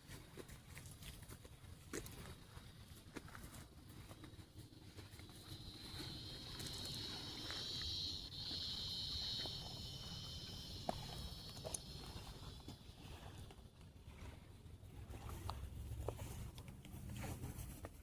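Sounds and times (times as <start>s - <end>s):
insects chirring: 2.6s - 13.8s
faint clicks: 5.2s - 12.8s.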